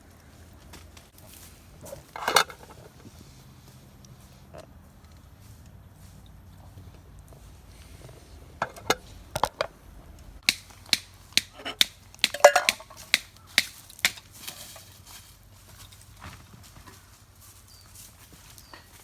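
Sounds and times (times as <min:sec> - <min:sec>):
cooking gear clicks and knocks: 0:01.8 - 0:03.1, 0:08.6 - 0:09.8, 0:10.4 - 0:15.0.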